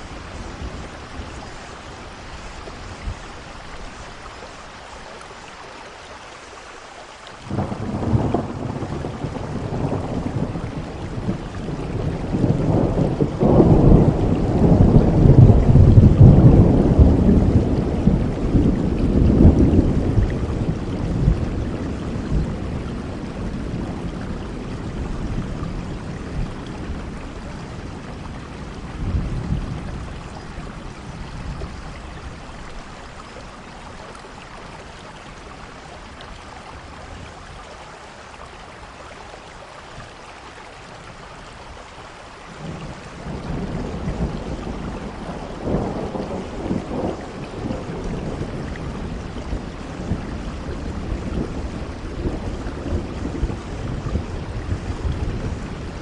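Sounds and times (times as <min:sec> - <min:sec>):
heavy rain: 0:00.0 - 0:56.0
rolling thunder: 0:07.5 - 0:32.7, 0:42.6 - 0:56.0.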